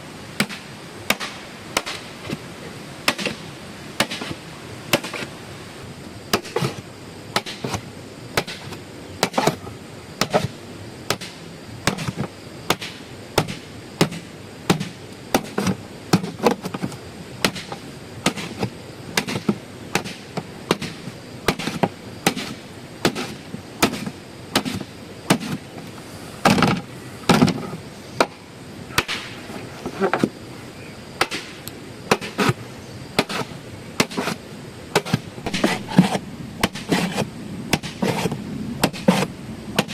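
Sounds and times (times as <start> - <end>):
hand tool striking earth: 0.4 - 2.4, 3.0 - 5.4, 6.3 - 30.3, 31.2 - 32.6, 33.2 - 39.9.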